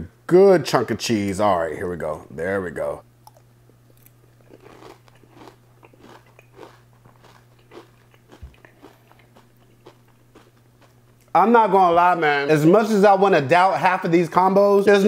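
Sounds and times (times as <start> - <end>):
low steady hum: 0.0 - 15.0
cereal being chewed: 3.2 - 11.4.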